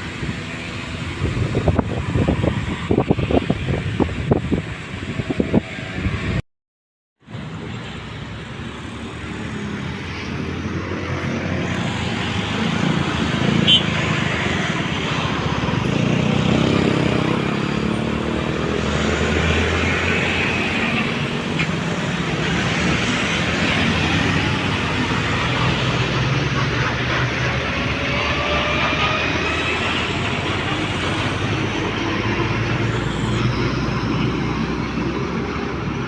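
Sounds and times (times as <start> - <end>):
roadside traffic: 0.0 - 6.4, 7.2 - 36.0
large vehicle engine running: 14.2 - 36.0.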